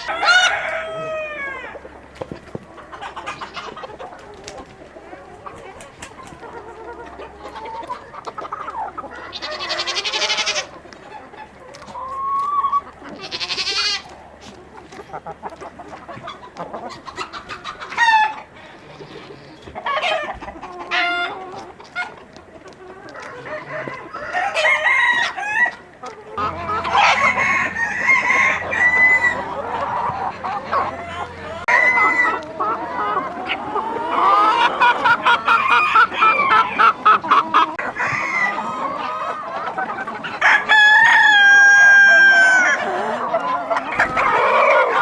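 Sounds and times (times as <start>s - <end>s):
rooster crowing: 0.0s - 1.8s, 23.2s - 25.8s, 26.4s - 30.0s, 40.4s - 42.8s
chickens clucking: 0.0s - 45.0s.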